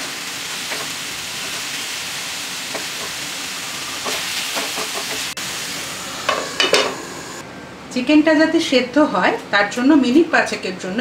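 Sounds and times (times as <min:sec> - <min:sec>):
chicken sizzling in hot oil: 0:00.0 - 0:07.4.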